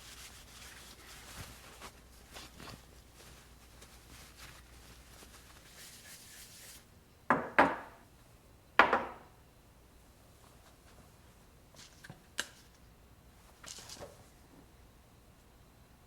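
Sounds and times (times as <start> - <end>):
soft rustling of handling: 0.0 - 6.8, 10.3 - 12.8, 13.4 - 14.7.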